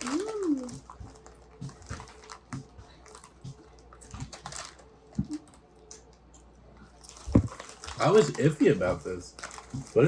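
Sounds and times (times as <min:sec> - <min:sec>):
person chewing potato chips: 0:00.0 - 0:10.0.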